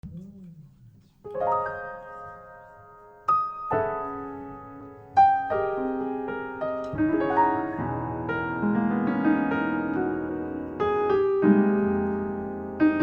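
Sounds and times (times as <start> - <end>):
jazz piano ballad chords: 1.2 - 13.0.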